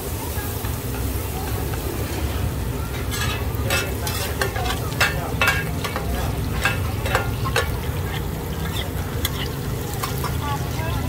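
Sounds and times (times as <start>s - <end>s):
batter sizzling in a pan: 0.0s - 11.0s
metal spatula scraping a pan: 2.9s - 10.7s.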